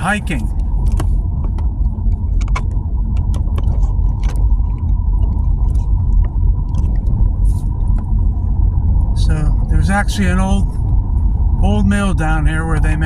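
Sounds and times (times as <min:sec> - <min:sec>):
road rumble inside car: 0:00.0 - 0:13.0
light clicks and rattles: 0:00.5 - 0:08.2.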